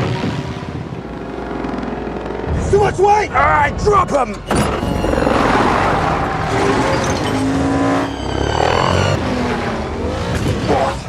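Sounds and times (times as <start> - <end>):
tires squealing: 4.3 - 11.0
truck engines revving hard: 4.4 - 11.0.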